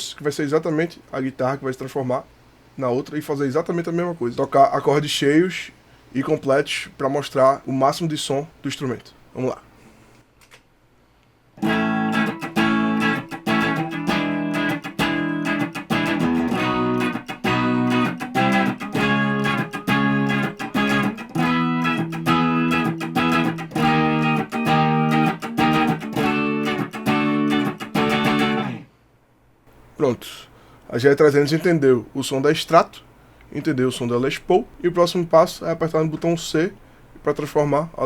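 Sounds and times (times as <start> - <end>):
electric guitar chords strummed hard: 11.6 - 28.9.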